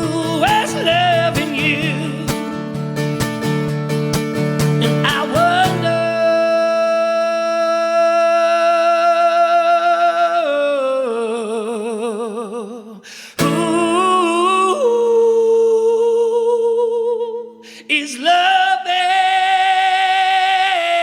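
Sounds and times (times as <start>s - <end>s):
man singing long notes: 0.0s - 2.5s, 4.8s - 21.0s.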